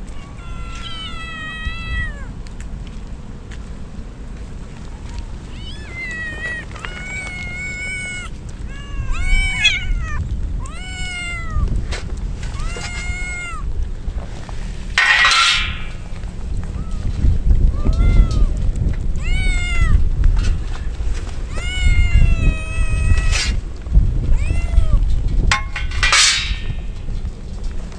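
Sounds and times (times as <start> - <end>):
kittens meowing: 0.0 - 2.3, 5.5 - 11.8, 12.5 - 13.7, 17.7 - 18.6, 19.2 - 20.1, 21.5 - 23.6, 24.4 - 25.0
steady low rumble: 0.0 - 27.9.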